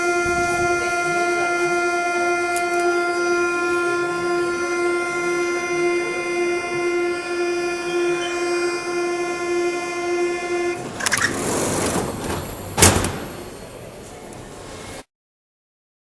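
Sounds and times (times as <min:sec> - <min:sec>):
train doors banging shut: 0:00.0 - 0:03.2, 0:10.8 - 0:13.9
buzzing warning tone: 0:00.0 - 0:13.7.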